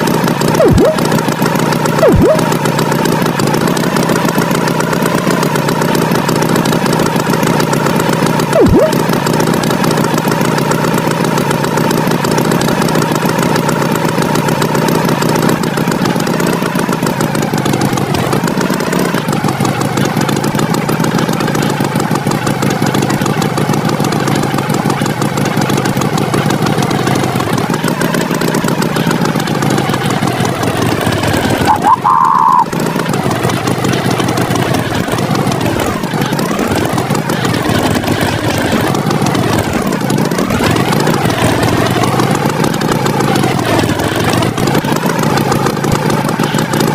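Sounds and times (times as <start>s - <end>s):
tractor engine running: 0.0s - 46.9s
short high tone: 0.6s - 1.1s, 2.0s - 2.5s, 8.6s - 9.1s, 31.7s - 32.7s.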